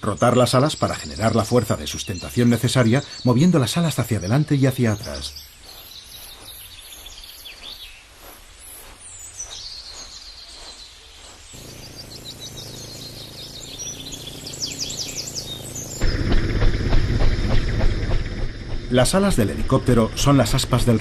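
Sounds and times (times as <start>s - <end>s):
outdoor background hiss: 0.0s - 16.0s
small birds chirping: 0.0s - 21.0s
loud low rumble: 11.6s - 21.0s.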